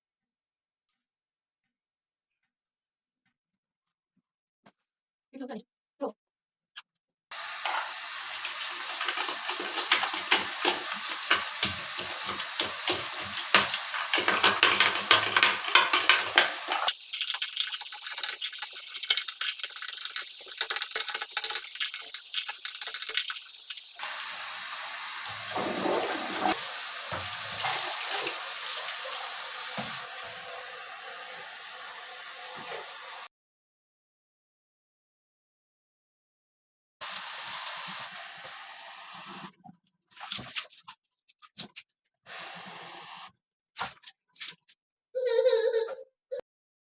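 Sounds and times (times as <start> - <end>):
water running: 7.3 - 33.3
objects clattering in water: 8.8 - 24.0.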